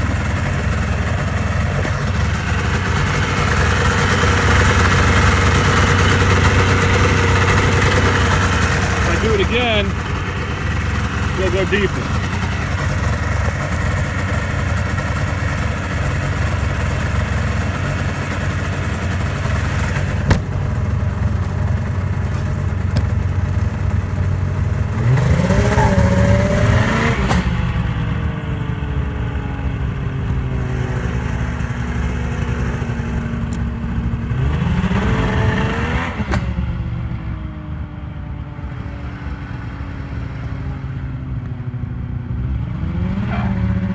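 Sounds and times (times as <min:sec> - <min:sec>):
snowmobile engine revving: 0:00.0 - 0:27.8, 0:34.2 - 0:36.4, 0:42.6 - 0:43.9.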